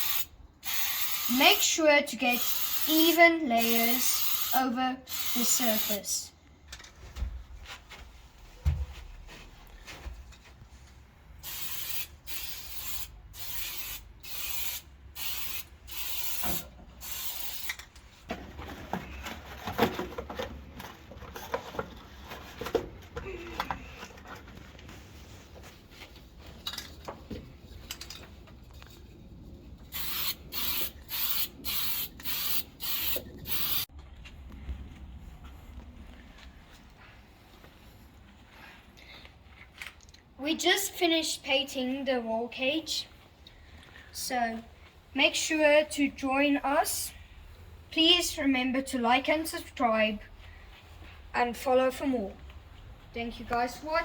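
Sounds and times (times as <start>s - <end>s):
spray paint can hissing: 0.0s - 6.0s, 11.4s - 17.8s, 29.9s - 33.9s.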